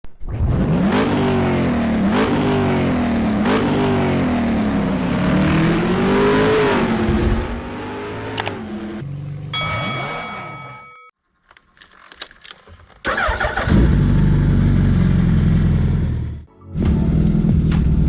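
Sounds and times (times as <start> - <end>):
motorcycle engine revving: 0.4 - 10.3.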